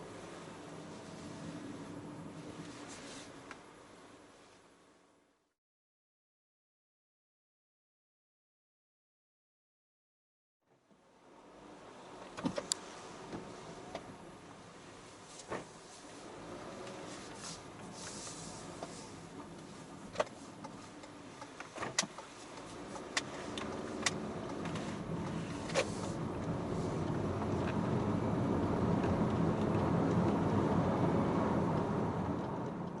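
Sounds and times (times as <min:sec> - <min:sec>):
vehicle rumble: 0:00.0 - 0:05.3, 0:10.8 - 0:33.0.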